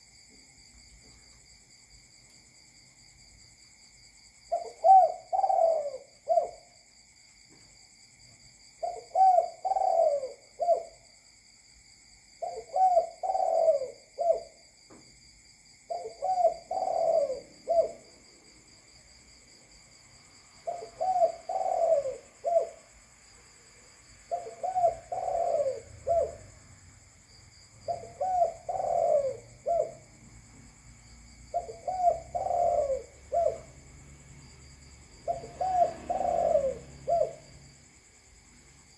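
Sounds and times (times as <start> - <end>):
dove cooing: 4.5 - 6.8, 8.8 - 11.0, 12.4 - 14.6, 15.9 - 18.1, 20.6 - 23.0, 24.3 - 26.7, 27.8 - 30.2, 31.5 - 33.9, 35.2 - 37.7.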